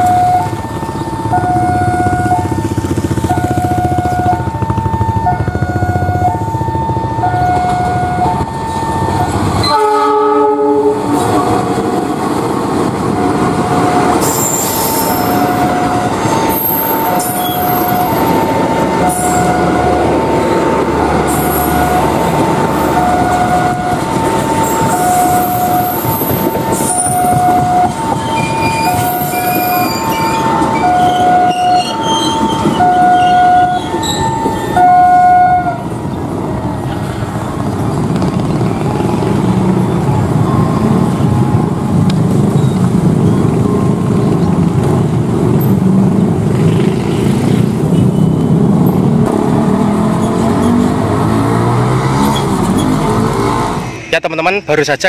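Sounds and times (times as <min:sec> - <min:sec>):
locomotive horn blast: 0:09.2 - 0:11.6, 0:21.1 - 0:36.0
train wheels squealing and clattering: 0:13.7 - 0:18.5, 0:24.6 - 0:34.8, 0:46.7 - 0:49.2, 0:52.2 - 0:54.7.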